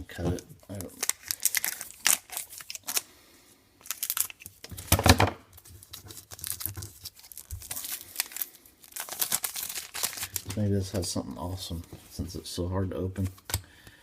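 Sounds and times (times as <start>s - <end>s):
foil wrapper crinkling and tearing: 0.2s - 3.1s, 3.8s - 4.9s, 5.6s - 10.7s.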